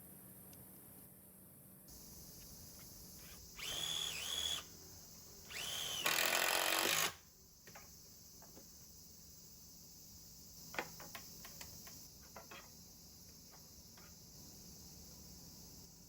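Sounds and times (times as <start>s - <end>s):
electric drill whining: 3.2s - 4.7s, 5.5s - 7.2s.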